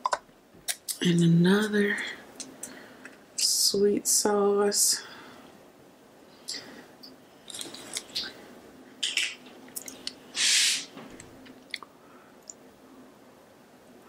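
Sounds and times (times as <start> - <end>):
short sharp hiss: 10.3 - 11.0.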